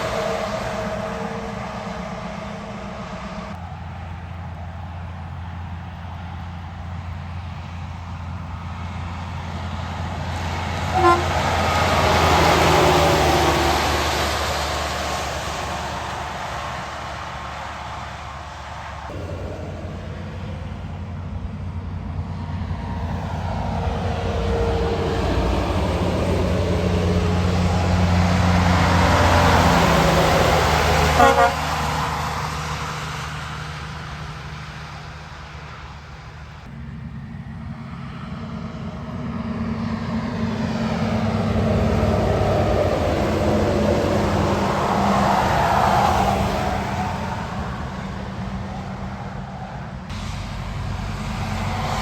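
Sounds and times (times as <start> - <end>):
heavy trucks driving past: 0.0 - 52.0
truck horn toot: 10.9 - 12.2, 31.0 - 32.3.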